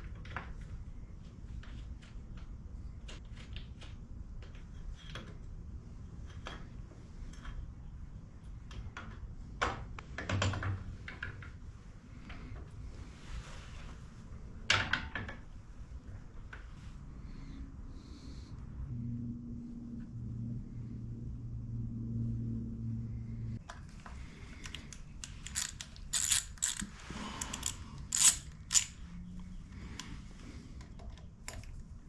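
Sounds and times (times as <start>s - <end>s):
tools clicking and tapping: 24.6s - 29.0s
metal parts clattering: 25.2s - 29.0s.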